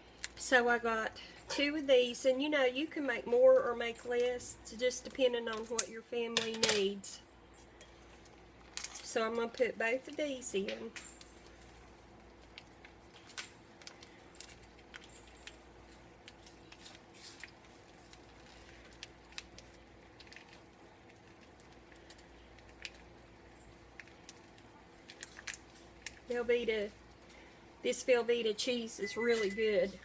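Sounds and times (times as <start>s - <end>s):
packs crinkling being opened: 10.9s - 26.3s.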